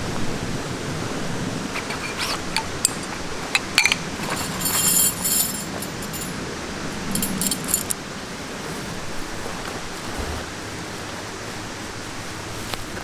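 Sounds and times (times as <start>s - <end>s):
metallic jangling and clinking: 1.8s - 8.0s.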